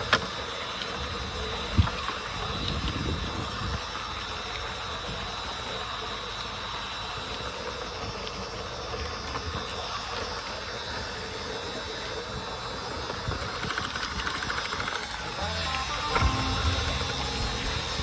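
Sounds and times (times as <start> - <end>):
model train rolling hum: 0.0 - 18.0.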